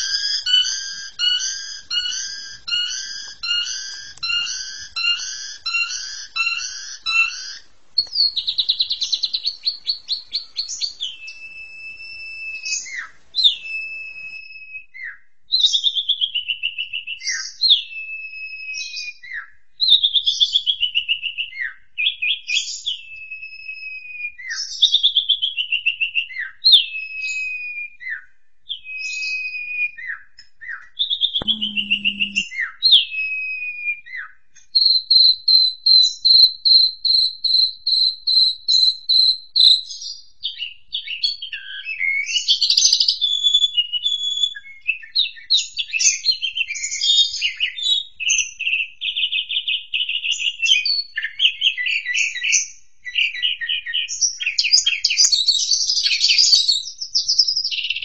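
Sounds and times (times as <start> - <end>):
starling whistled trill song: 0.0 - 28.0, 31.4 - 58.0
fast high pulsing trill: 31.4 - 32.4.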